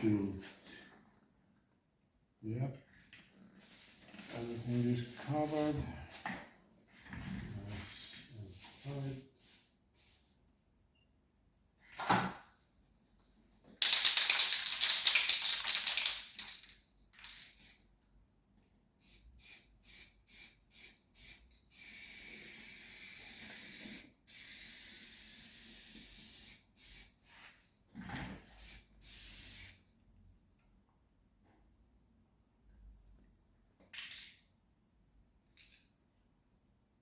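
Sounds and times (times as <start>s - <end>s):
spray paint hissing: 17.2s - 17.8s, 19.0s - 27.1s, 28.6s - 29.8s.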